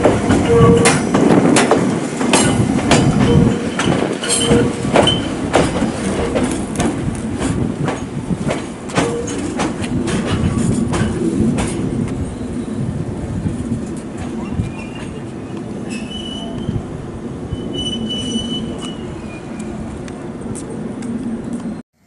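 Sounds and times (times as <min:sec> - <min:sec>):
wheels squealing on rails: 0:00.0 - 0:01.4, 0:02.4 - 0:06.7, 0:13.8 - 0:20.0
train wheels clacking over rail joints: 0:00.0 - 0:12.4.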